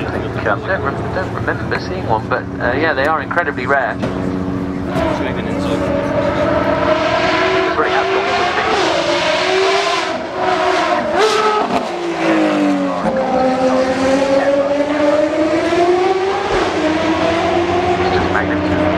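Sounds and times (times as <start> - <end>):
race car engine revving: 0.0 - 18.9.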